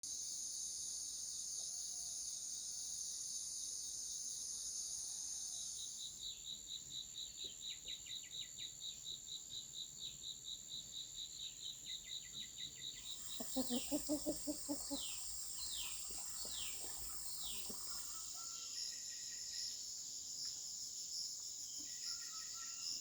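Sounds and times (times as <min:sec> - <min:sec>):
insects shrilling: 0:13.1 - 0:18.4.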